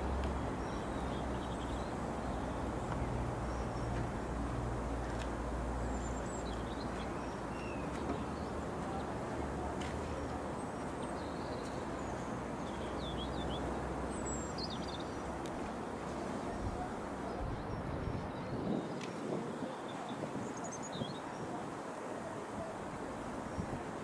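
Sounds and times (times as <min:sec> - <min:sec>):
small birds chirping: 0:05.8 - 0:09.2, 0:10.0 - 0:15.4.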